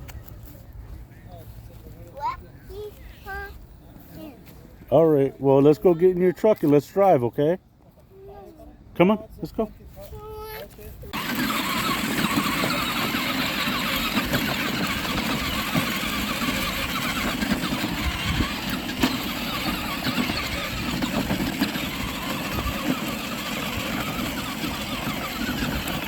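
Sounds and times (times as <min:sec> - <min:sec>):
electric toy truck motors running: 0:11.1 - 0:26.0.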